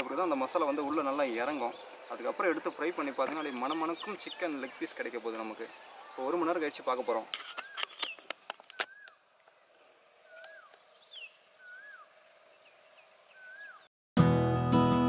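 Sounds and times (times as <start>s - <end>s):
faint outdoor background: 0.0s - 15.0s
bird whistled call: 7.4s - 9.2s, 10.3s - 12.1s, 13.3s - 13.9s
strummed acoustic guitar music: 14.2s - 15.0s.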